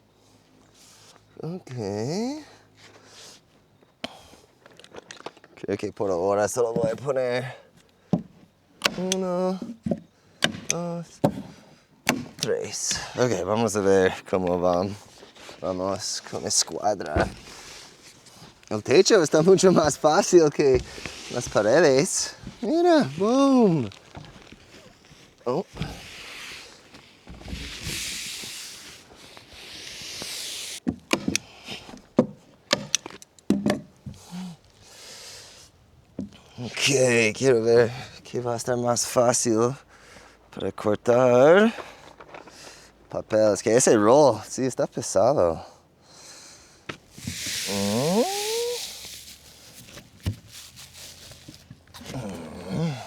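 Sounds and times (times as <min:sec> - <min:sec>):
roofing underlayment rustling: 0:12.3 - 0:30.9, 0:47.0 - 0:52.4.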